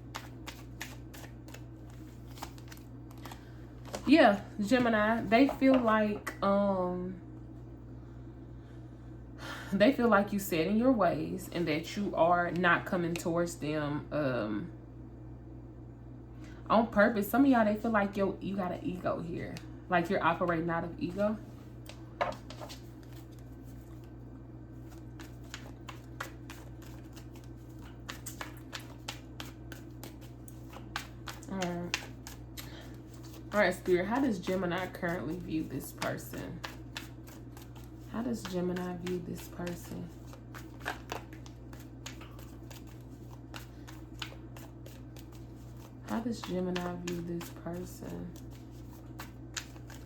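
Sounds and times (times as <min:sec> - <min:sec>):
cards being shuffled: 0:00.0 - 0:05.9, 0:21.8 - 0:24.2, 0:24.8 - 0:50.0
steady low hum: 0:00.0 - 0:50.0.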